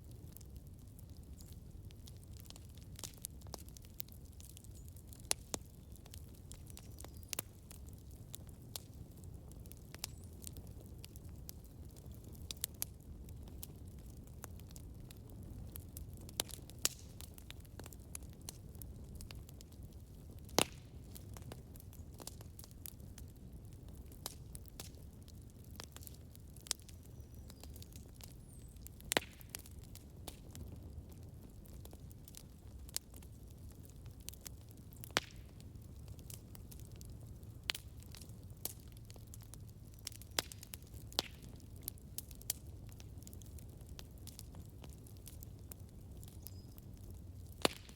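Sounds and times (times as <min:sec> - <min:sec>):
campfire crackling: 0:00.0 - 0:47.9
fire popping: 0:00.0 - 0:47.9
low rumble of flames: 0:00.0 - 0:47.9.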